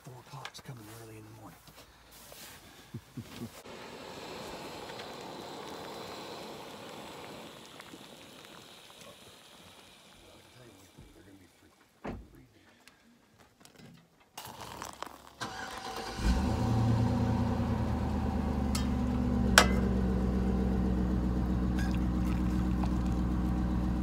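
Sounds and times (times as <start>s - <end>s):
vehicle engine cranking and idling: 15.4s - 24.0s.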